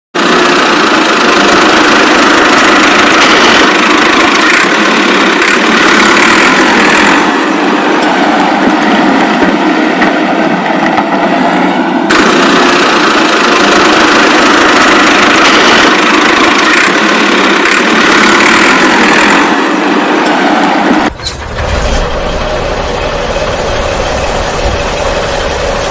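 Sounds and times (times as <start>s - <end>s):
motor running: 0.2s - 9.4s, 12.1s - 20.4s.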